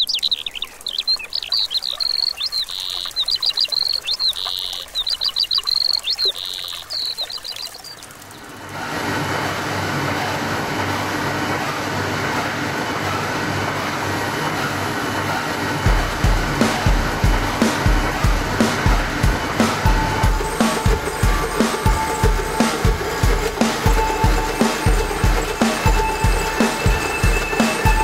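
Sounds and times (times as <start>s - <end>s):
songbird singing: 0.0s - 8.7s
steady rushing noise: 8.0s - 28.0s.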